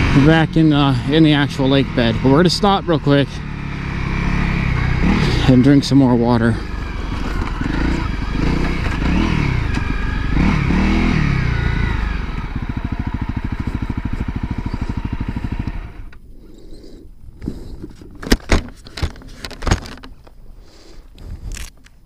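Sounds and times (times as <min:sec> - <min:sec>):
motorcycle engine revving and idling: 0:00.0 - 0:16.2.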